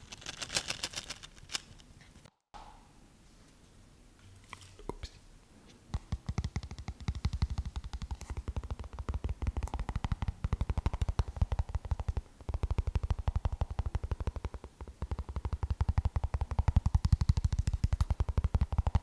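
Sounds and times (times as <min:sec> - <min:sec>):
rapid tapping on hard object: 0:05.9 - 0:19.0.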